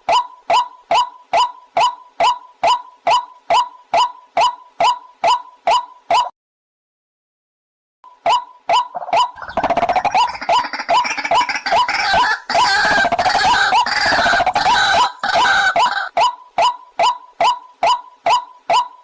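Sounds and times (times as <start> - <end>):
waterhen repeated short notes: 8.2 - 19.0
overlapping harsh bird calls: 8.7 - 19.0.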